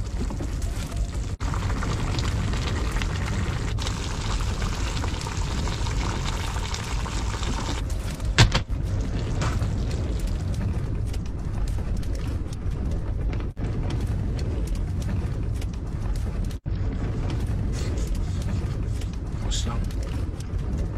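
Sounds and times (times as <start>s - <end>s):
fish bubbling in a pan: 0.0s - 7.9s, 8.8s - 10.6s.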